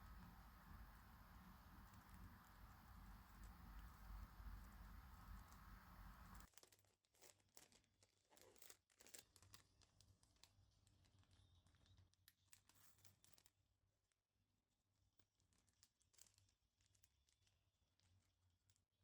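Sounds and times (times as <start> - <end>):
low background hum: 0.0 - 6.5.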